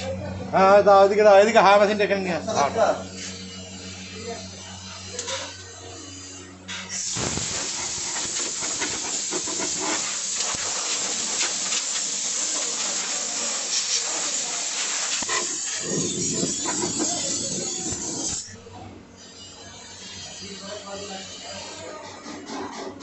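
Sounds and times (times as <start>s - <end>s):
air blower hissing: 6.8s - 18.6s.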